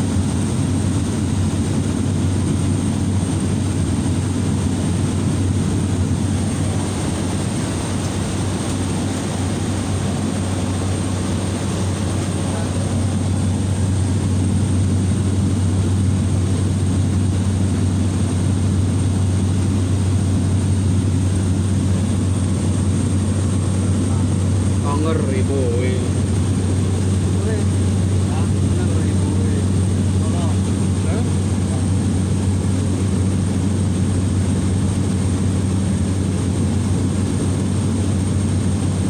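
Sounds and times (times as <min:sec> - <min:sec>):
propeller plane engine hum: 0:00.0 - 0:39.0
wide rushing noise: 0:05.8 - 0:32.5.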